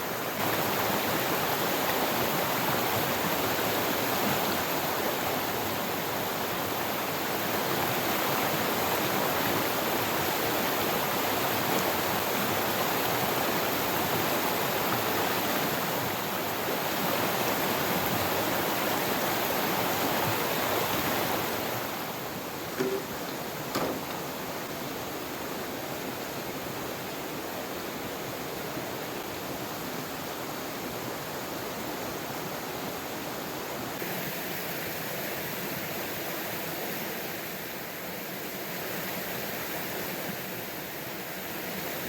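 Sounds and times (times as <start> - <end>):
flowing river water: 0.0 - 42.0
short knock: 22.8 - 24.4.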